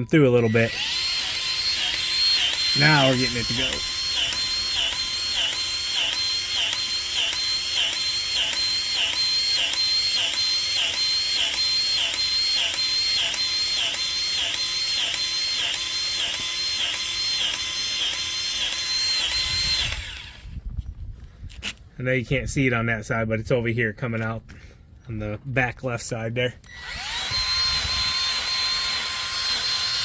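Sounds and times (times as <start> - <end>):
battery grease gun running: 0.4 - 20.6, 26.6 - 30.0.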